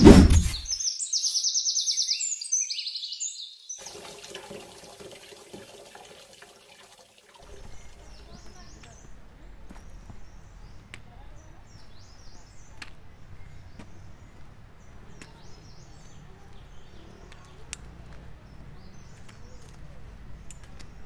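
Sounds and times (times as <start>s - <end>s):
small birds chirping: 0.0s - 4.1s, 7.4s - 21.0s.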